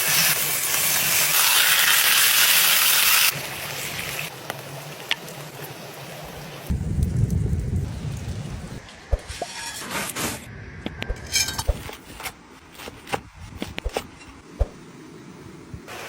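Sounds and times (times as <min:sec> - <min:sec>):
cooking utensils clinking: 0:11.2 - 0:13.2.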